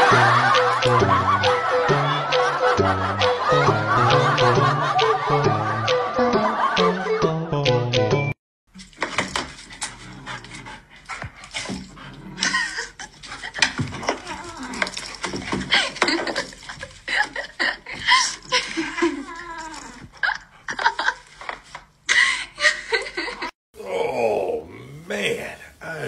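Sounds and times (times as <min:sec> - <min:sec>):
human laughter: 0:00.0 - 0:07.6, 0:12.4 - 0:13.6.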